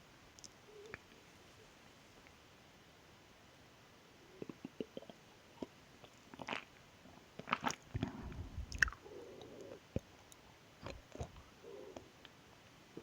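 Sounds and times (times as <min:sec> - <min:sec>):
chewing soft jelly: 0:04.4 - 0:12.4
swallowing: 0:07.4 - 0:10.0, 0:10.8 - 0:12.0
wet mouth clicks: 0:08.6 - 0:09.0.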